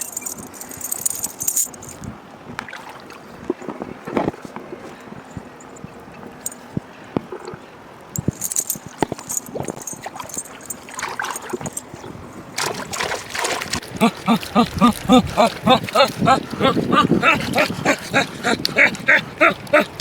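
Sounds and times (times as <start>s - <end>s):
water splashing and sloshing: 0.0s - 5.0s, 8.2s - 18.8s.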